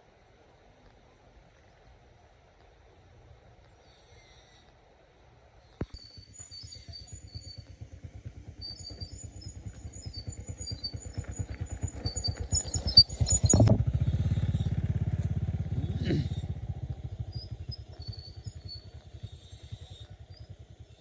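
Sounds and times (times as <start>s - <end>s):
small gasoline engine running: 6.1s - 21.0s.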